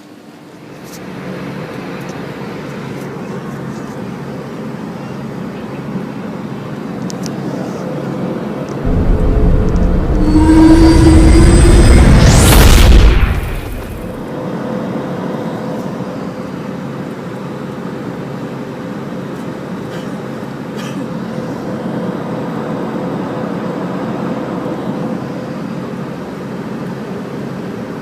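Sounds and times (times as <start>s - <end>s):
steady humming tones: 7.4s - 14.8s
airliner cabin hum: 8.8s - 14.2s
deep engine rumble: 8.8s - 14.3s
fast rising whoosh: 8.8s - 14.3s.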